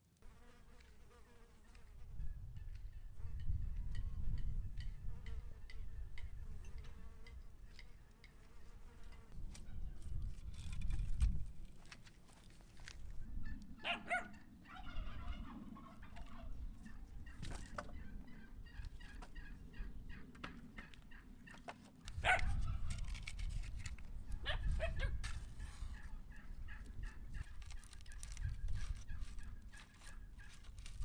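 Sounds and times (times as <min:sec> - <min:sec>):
chicken calling: 0:13.4 - 0:22.8.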